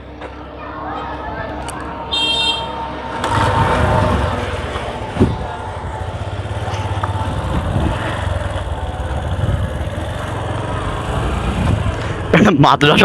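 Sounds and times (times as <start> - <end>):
motorcycle engine running: 0.0 - 13.0
short thump: 5.1 - 5.5.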